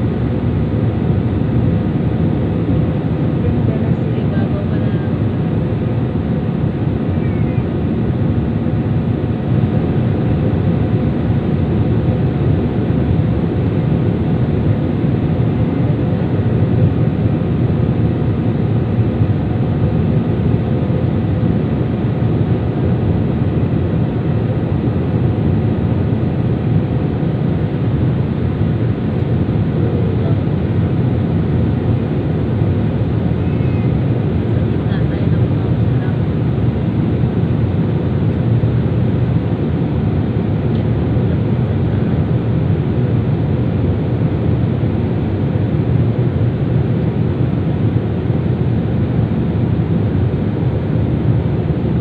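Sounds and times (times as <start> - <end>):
airliner engines droning: 0.0 - 52.0.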